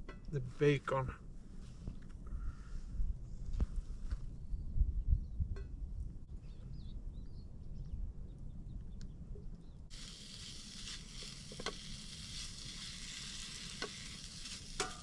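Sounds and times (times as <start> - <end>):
bacon sizzling in a frying pan: 9.9 - 15.0.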